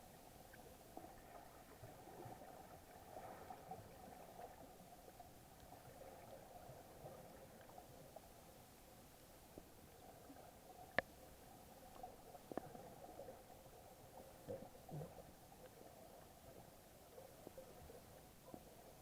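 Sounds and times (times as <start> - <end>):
muffled underwater hiss: 0.0 - 19.0
small clicks and crackles: 9.5 - 18.9.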